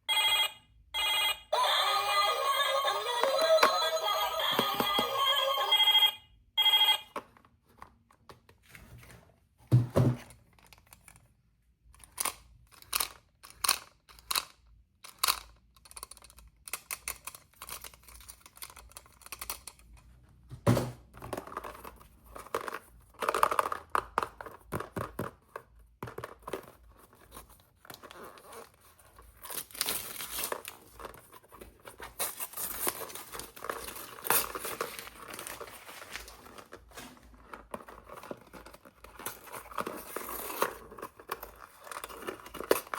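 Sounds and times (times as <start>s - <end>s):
packaging crinkling and tearing: 27.1s - 42.9s.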